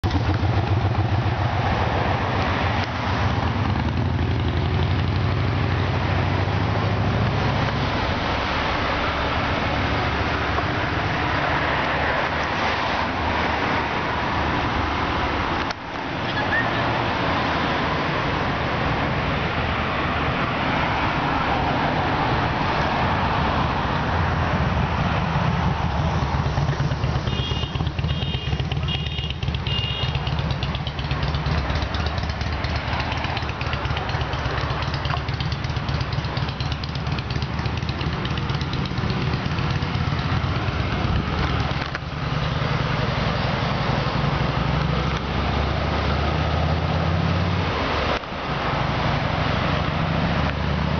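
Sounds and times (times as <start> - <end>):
car engine idling: 26.4 - 42.3.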